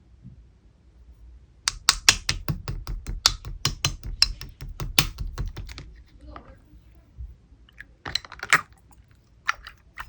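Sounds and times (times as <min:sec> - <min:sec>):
slime clicking and popping: 0:01.7 - 0:05.9.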